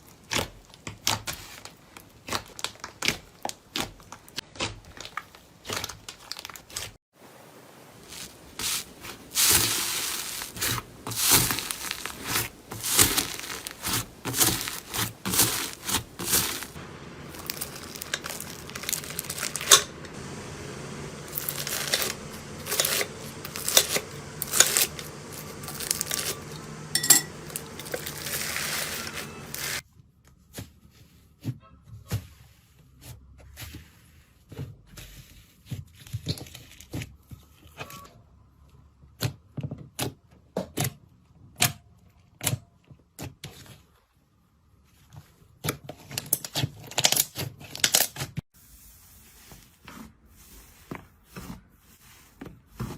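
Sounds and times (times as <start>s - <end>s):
slime crackling and popping: 8.1s - 20.1s, 21.2s - 26.8s.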